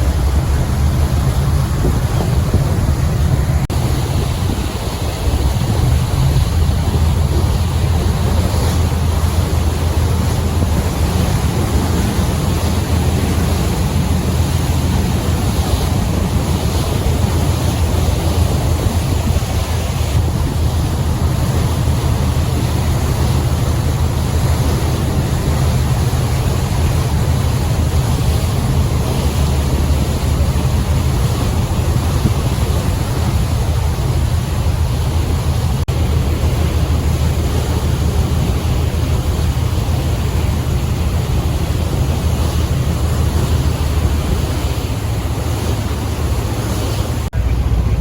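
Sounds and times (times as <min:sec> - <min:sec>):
boat engine drone: 0:00.0 - 0:48.0
water rushing past hull: 0:00.0 - 0:48.0
wind buffeting microphone: 0:00.0 - 0:48.0.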